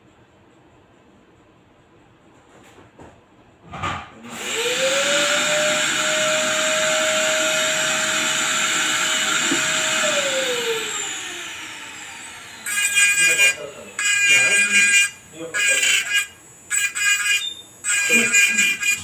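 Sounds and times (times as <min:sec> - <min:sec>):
electric motor whine: 0:04.2 - 0:19.0.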